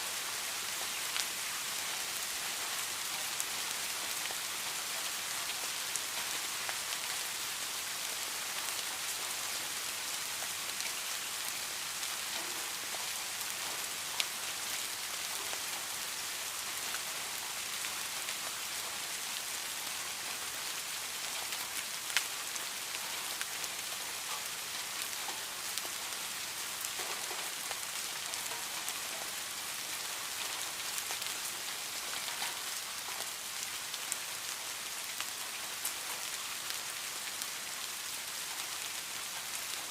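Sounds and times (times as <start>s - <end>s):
rain falling steadily: 0.0s - 39.9s.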